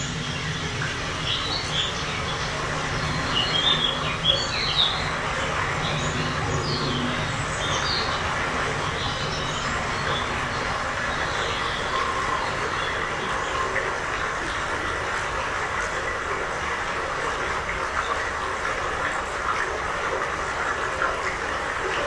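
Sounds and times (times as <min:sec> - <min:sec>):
birds chirping: 0:00.0 - 0:14.9.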